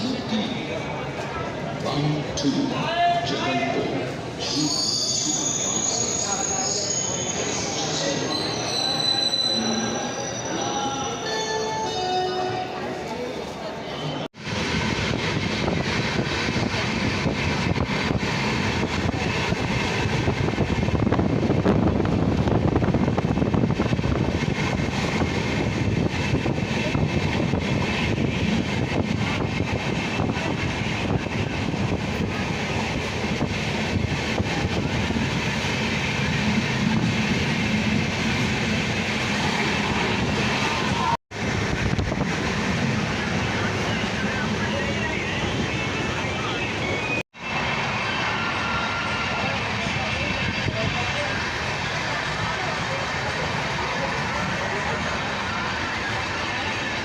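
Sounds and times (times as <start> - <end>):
train rumbling on rails: 0.0 - 57.0.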